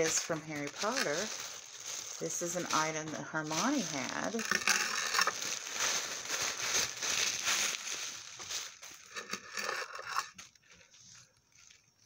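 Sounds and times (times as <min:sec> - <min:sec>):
packaging crumpling and crinkling: 0:00.0 - 0:12.0.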